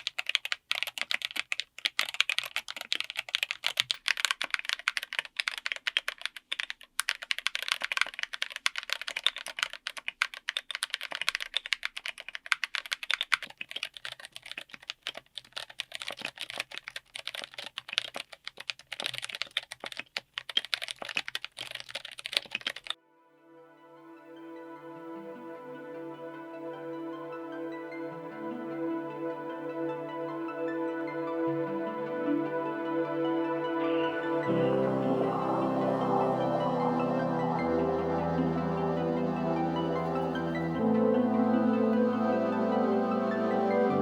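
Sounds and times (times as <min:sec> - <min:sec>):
fast typing on mechanical keyboard: 0:00.0 - 0:23.0.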